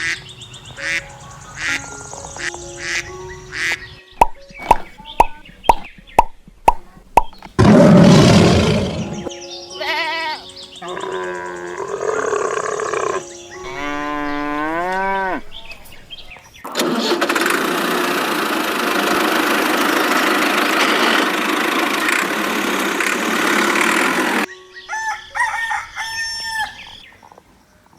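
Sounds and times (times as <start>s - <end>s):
rooster crowing: 24.8s - 27.0s.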